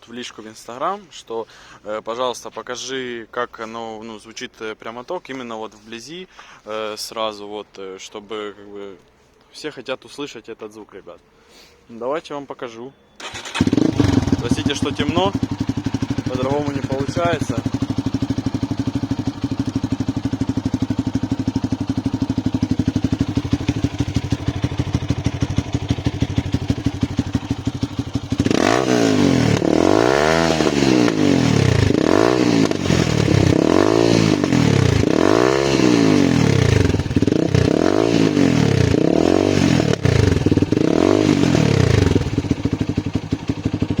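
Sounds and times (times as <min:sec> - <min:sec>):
motorcycle engine revving: 0:13.2 - 0:44.0
motorcycle idling: 0:13.2 - 0:44.0.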